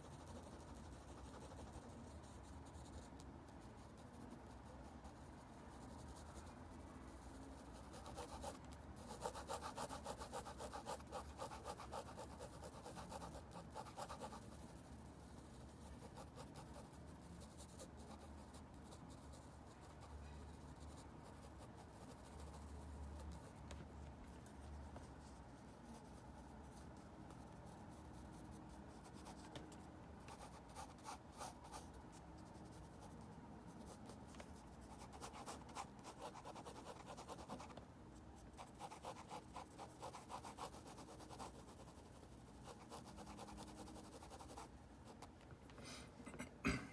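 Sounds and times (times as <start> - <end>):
drawing tool scratching on paper: 7.2 - 23.5, 33.8 - 37.8, 38.6 - 45.2.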